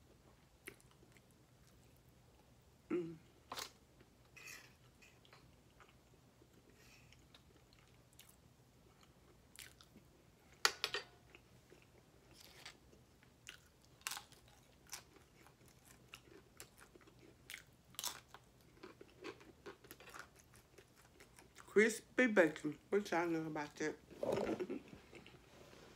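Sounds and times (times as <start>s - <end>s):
chewing crispy bacon: 0.4s - 2.1s, 3.6s - 10.0s, 11.3s - 21.7s.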